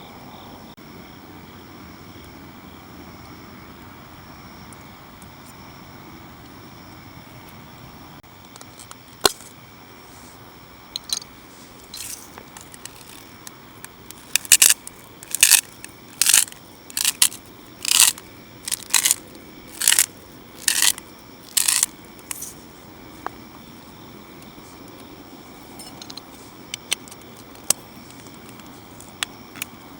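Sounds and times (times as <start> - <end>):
short crunches: 12.0 - 13.4, 14.1 - 22.5.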